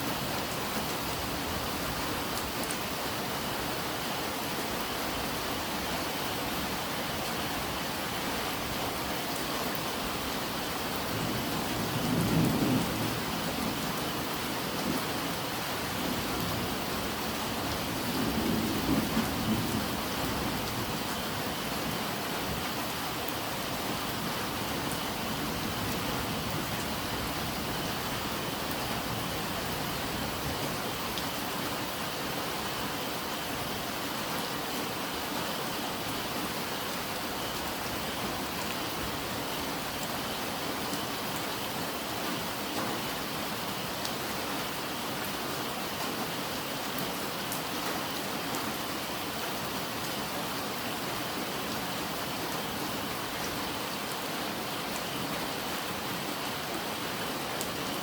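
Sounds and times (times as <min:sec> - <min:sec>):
steady rain falling: 0:00.0 - 0:58.0
low rumbles of thunder: 0:11.1 - 0:13.9.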